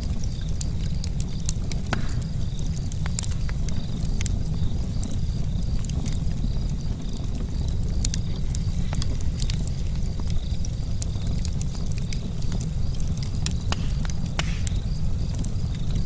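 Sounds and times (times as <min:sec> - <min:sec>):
campfire crackling and popping: 0:00.0 - 0:16.0
steady low rumble: 0:12.7 - 0:16.0.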